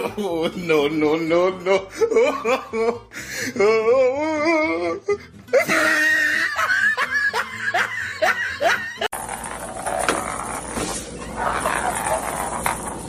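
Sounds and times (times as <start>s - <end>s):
background music: 0.0s - 9.1s
person laughing: 0.0s - 9.1s.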